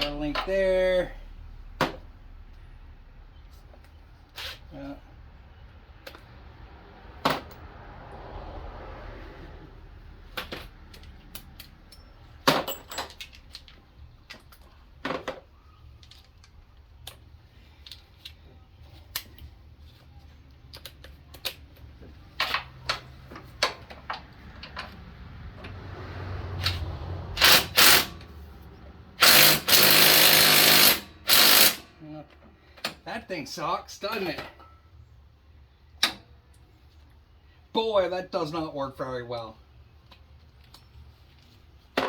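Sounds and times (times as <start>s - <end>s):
handheld power tool running: 27.4s - 28.1s, 29.2s - 31.8s.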